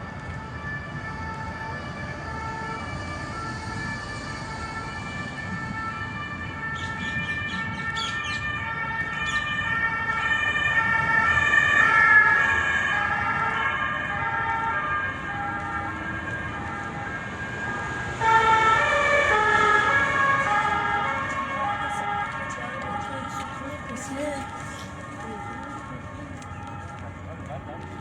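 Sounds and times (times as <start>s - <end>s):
two-tone siren: 0.0s - 28.0s.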